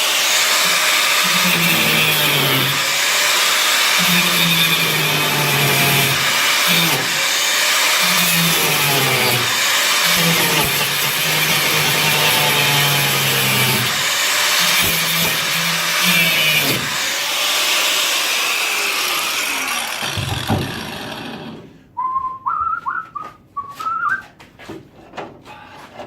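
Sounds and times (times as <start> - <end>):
angle grinder cutting steel: 0.0 - 21.7
person whistling short notes: 22.0 - 24.4.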